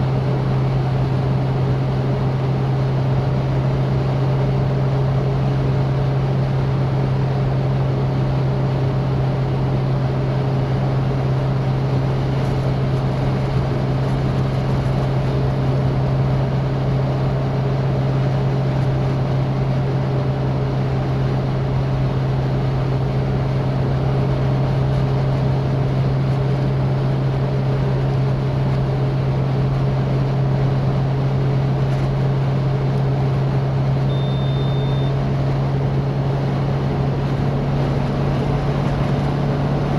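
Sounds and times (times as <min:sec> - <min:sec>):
car engine drone: 0:00.0 - 0:39.9
short high tone: 0:34.1 - 0:35.2.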